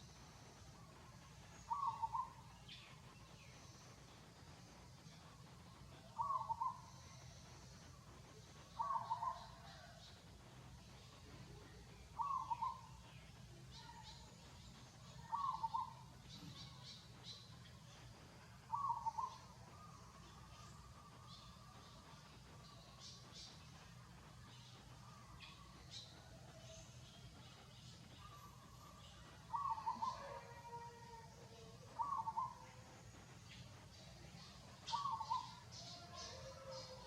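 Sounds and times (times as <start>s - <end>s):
faint high bird chirps: 11.3s - 17.6s, 27.7s - 32.8s.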